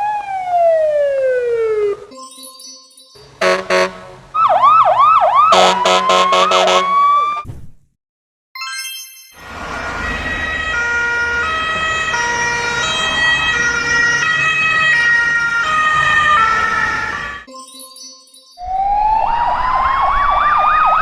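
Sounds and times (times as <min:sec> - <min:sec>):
two-tone emergency siren: 0:00.0 - 0:02.1, 0:03.4 - 0:07.4, 0:09.4 - 0:17.5, 0:18.6 - 0:21.0.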